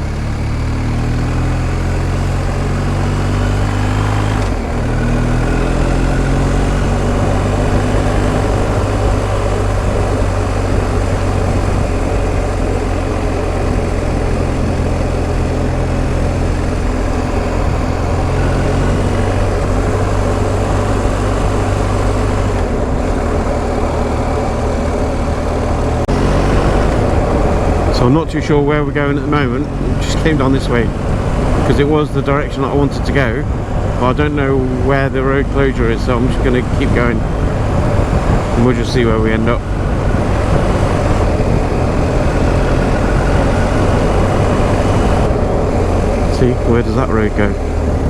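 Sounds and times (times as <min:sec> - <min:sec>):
motorcycle engine running: 0:00.0 - 0:48.0
wind rush over camera: 0:16.2 - 0:47.0.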